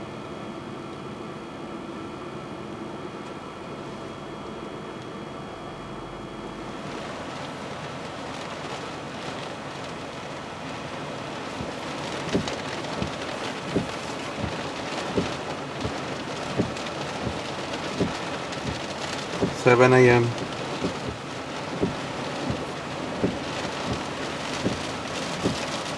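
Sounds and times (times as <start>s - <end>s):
wind: 0.0s - 25.9s
heavy rain: 6.6s - 25.9s.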